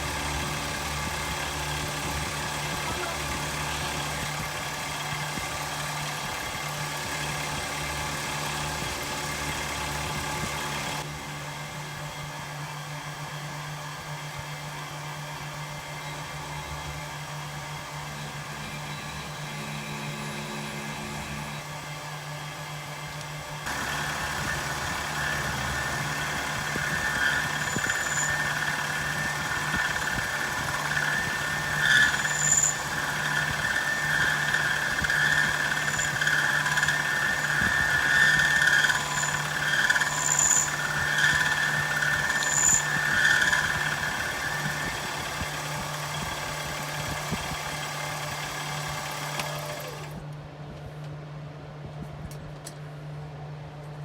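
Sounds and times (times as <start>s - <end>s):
milling cutter squealing: 0.0s - 11.0s, 23.7s - 50.2s
spindle motor hum: 0.0s - 50.3s.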